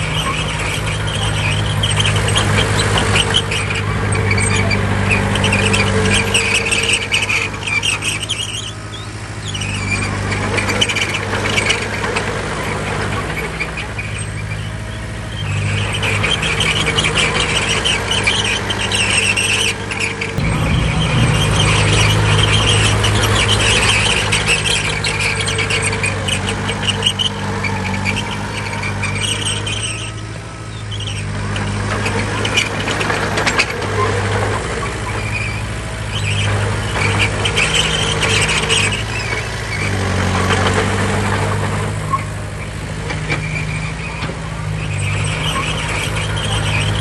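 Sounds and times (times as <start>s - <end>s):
high squeal: 0.0s - 12.1s, 12.7s - 47.0s
bulldozer diesel engine running: 0.0s - 47.0s
metallic clanks: 20.0s - 26.2s.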